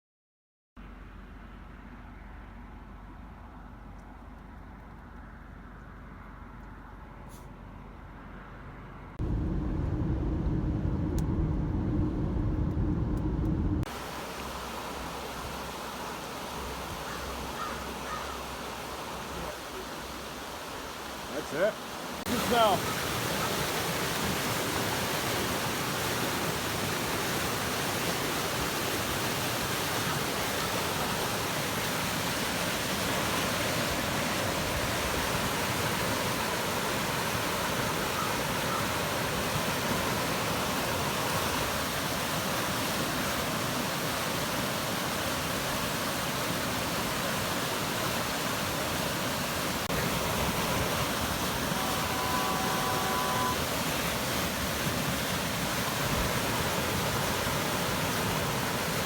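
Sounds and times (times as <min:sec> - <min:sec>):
floodwater rushing down creek: 0:13.8 - 0:59.0.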